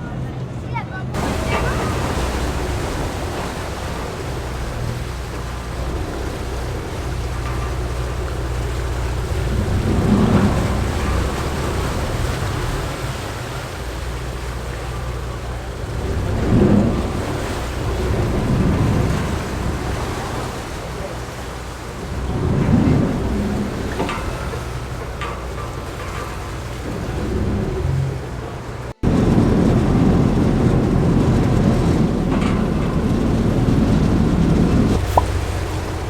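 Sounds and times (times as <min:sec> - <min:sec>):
boat engine droning: 0:00.0 - 0:36.0
wind on microphone: 0:01.1 - 0:36.0.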